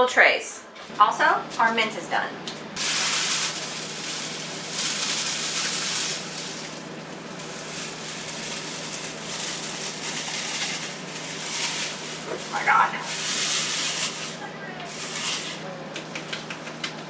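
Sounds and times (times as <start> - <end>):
steady low hum: 0.0 - 17.0
running water hissing: 2.8 - 15.7.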